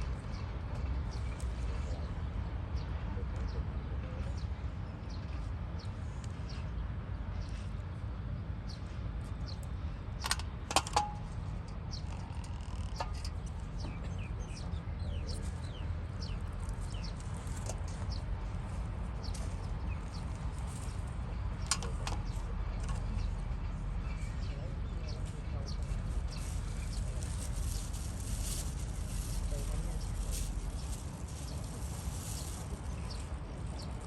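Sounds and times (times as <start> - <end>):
small birds chirping: 11.8 - 34.0.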